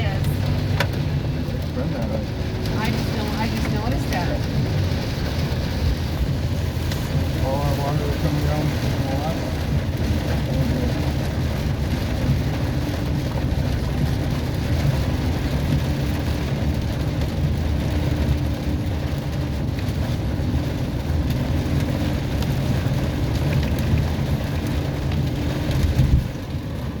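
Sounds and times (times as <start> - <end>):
heavy rain and hail pelting: 0.0 - 27.0
steady low rumble: 0.0 - 27.0.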